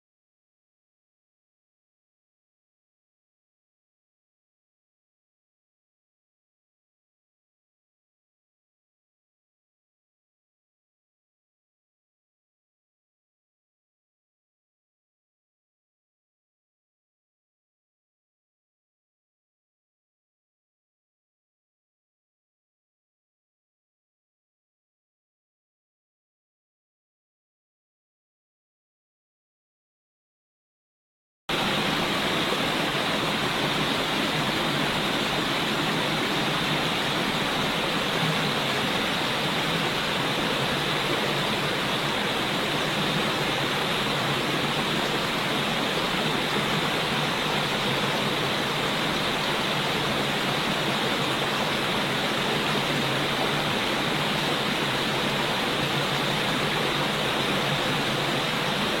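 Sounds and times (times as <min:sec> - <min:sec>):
rushing water: 0:31.5 - 0:59.0.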